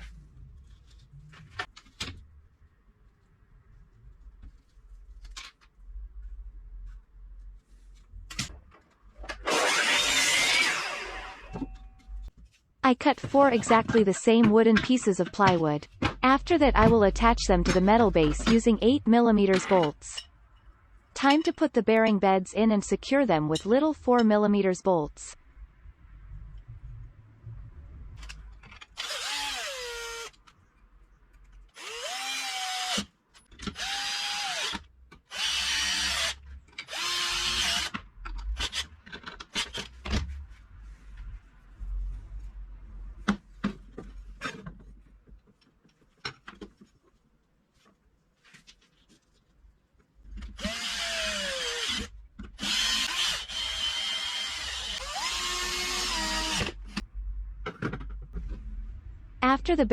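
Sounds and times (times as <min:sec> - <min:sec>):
power drill driving bolts: 0:09.3 - 0:11.6, 0:50.6 - 0:56.8.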